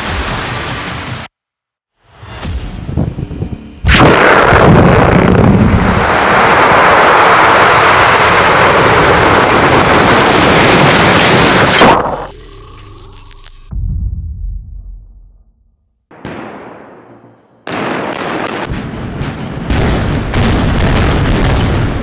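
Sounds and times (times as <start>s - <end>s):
explosive blast and roar: 2.2s - 12.8s, 17.7s - 22.0s.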